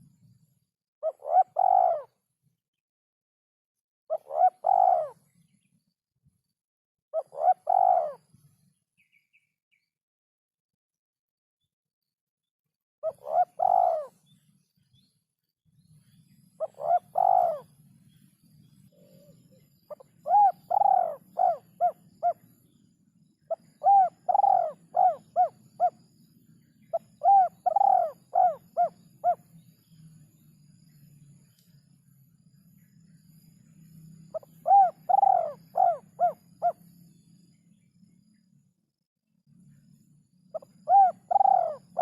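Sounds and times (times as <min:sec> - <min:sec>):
dove cooing: 0:01.0 - 0:02.2, 0:04.1 - 0:05.2, 0:07.2 - 0:08.2, 0:13.0 - 0:14.2, 0:16.6 - 0:17.8, 0:18.9 - 0:22.5, 0:23.5 - 0:26.1, 0:26.9 - 0:29.5, 0:34.3 - 0:36.8, 0:40.5 - 0:42.0
faint low hum: 0:15.7 - 0:42.0.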